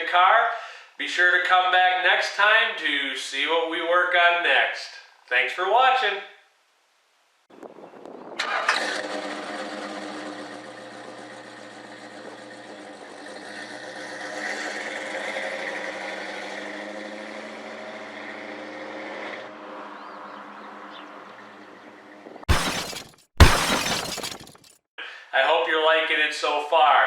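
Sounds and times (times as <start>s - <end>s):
car engine starting and running: 8.4s - 20.3s.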